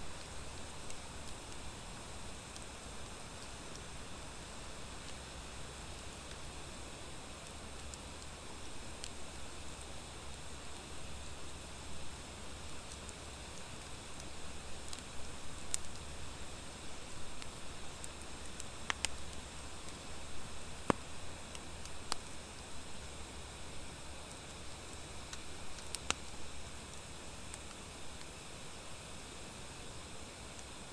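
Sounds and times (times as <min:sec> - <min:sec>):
campfire hiss: 0:00.0 - 0:30.9
campfire crackling pops: 0:00.1 - 0:04.0, 0:05.0 - 0:06.6, 0:12.1 - 0:28.4, 0:30.5 - 0:30.8.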